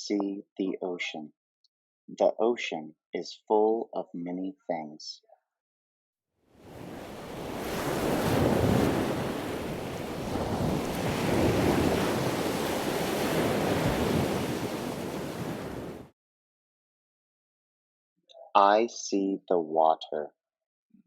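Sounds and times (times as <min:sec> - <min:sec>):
ocean waves washing in: 0:06.5 - 0:16.1.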